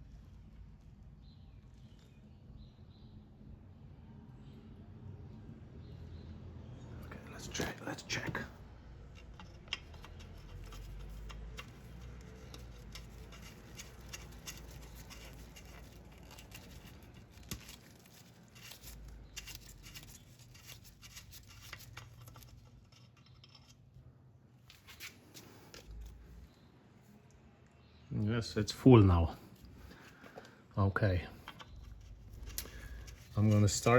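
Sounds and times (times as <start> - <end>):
hands handling parts: 9.1 - 24.0, 31.3 - 33.9.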